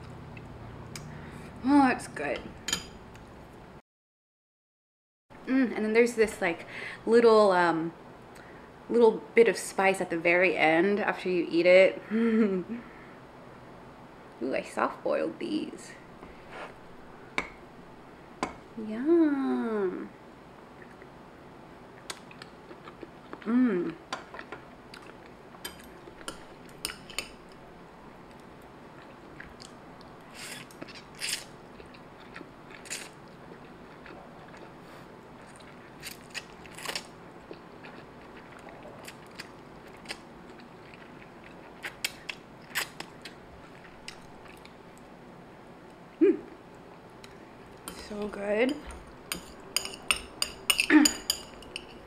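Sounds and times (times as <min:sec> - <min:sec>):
chewing and mouth smacks: 0:22.0 - 0:23.4, 0:28.3 - 0:34.8, 0:35.4 - 0:45.1
person humming: 0:23.4 - 0:24.0, 0:46.2 - 0:46.6.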